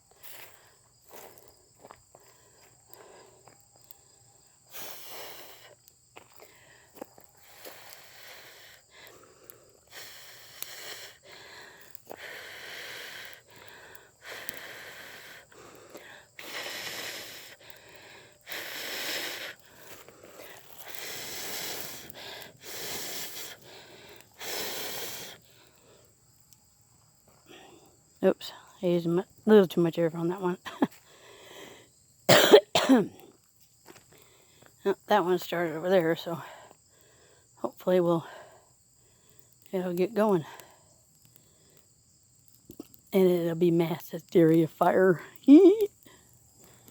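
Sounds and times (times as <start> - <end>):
fire crackling: 0.0 - 46.9
person blowing on fire: 4.7 - 5.7, 7.4 - 25.8.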